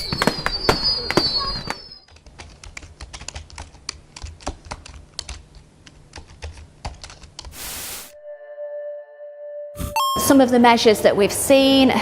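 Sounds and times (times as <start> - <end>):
loud burst of hiss: 7.6 - 8.2.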